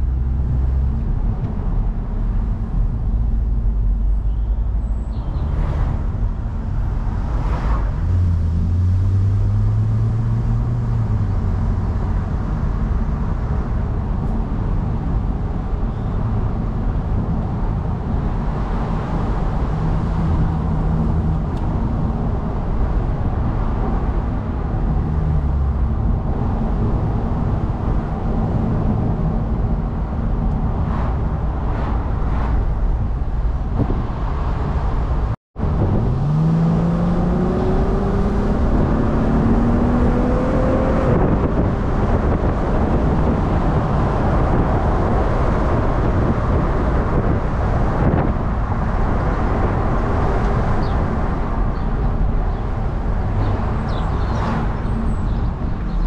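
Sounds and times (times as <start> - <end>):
road noise: 0.0 - 56.0
car engine accelerating: 5.2 - 14.4, 30.4 - 46.4.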